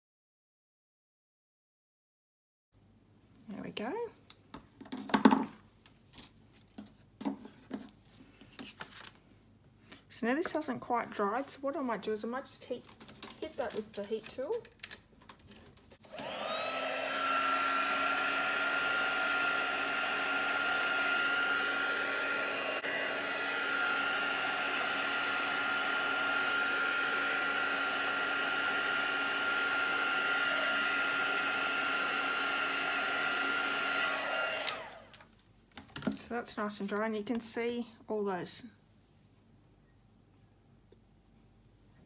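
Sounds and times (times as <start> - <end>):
heat gun fan whirring: 16.0 - 35.3.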